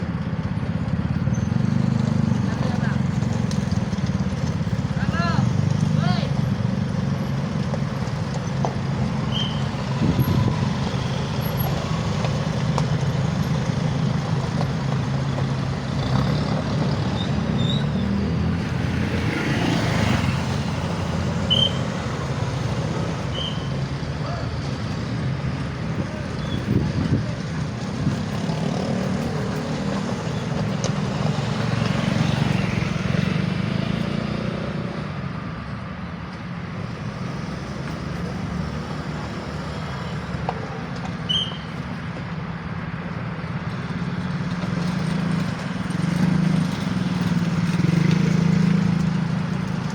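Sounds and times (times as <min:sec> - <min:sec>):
large engine rumbling: 0:00.0 - 0:49.9
passing vehicles: 0:00.0 - 0:49.9
short high squeaks: 0:09.3 - 0:09.8, 0:17.1 - 0:18.2, 0:21.4 - 0:22.0, 0:23.2 - 0:23.9, 0:41.2 - 0:41.9.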